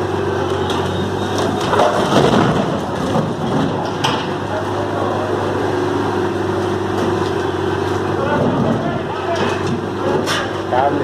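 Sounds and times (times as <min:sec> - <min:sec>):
truck diesel engine under load: 0:00.0 - 0:11.0
rumbling clatter: 0:01.2 - 0:04.8, 0:07.0 - 0:10.9.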